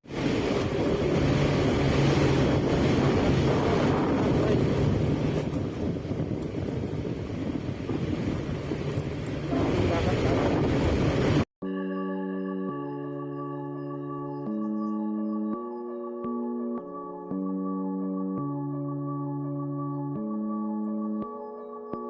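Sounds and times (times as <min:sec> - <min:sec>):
wind on microphone: 0:00.0 - 0:11.5
engine hum: 0:00.1 - 0:11.4.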